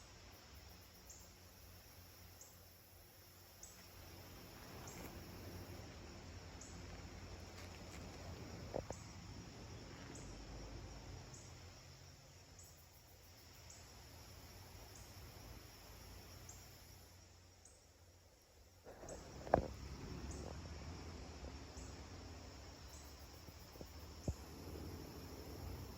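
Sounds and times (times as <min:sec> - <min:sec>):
high insect-like chirp: 0:00.0 - 0:25.9
low steady rumble: 0:03.0 - 0:12.6, 0:17.1 - 0:25.9.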